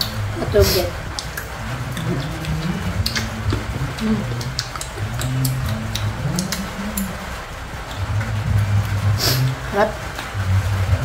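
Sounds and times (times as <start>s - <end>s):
mouth clicks: 0.0s - 11.0s
crunchy fruit being chewed: 0.9s - 9.6s.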